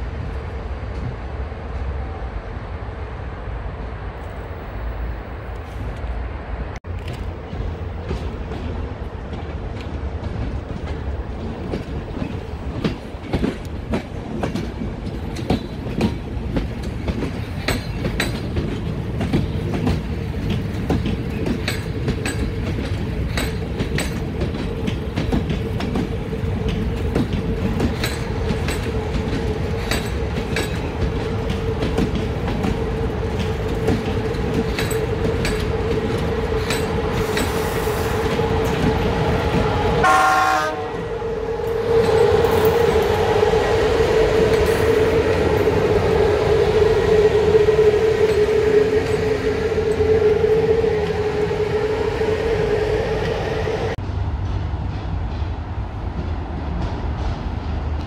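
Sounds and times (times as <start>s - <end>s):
locomotive steady tone: 0.0s - 57.5s
train wheels rumbling: 0.0s - 58.0s
wheels clicking over rail joints: 6.9s - 40.0s.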